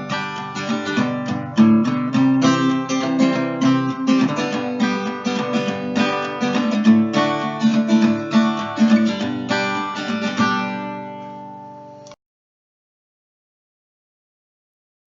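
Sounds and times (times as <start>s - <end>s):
acoustic guitar strumming: 0.0s - 12.1s.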